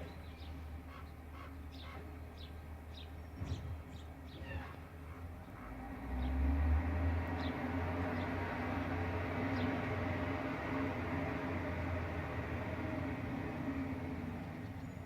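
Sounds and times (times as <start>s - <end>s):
small birds chirping: 0.0s - 6.4s, 14.5s - 15.0s.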